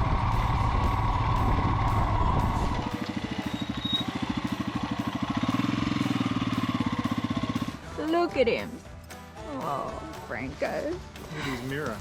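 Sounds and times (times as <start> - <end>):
motorcycle engine under load: 0.0 - 7.8
motorcycle engine idling: 0.0 - 7.9.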